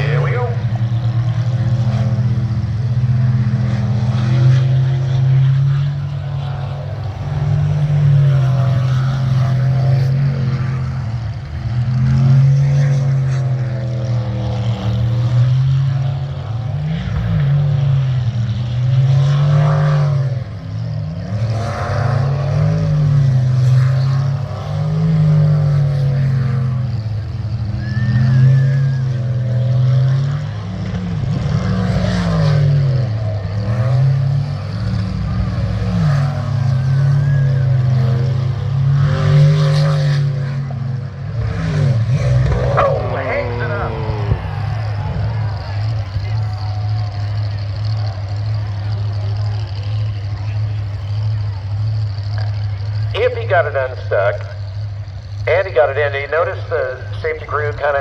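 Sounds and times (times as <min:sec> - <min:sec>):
boat engine running hard: 0:42.4 - 0:54.0.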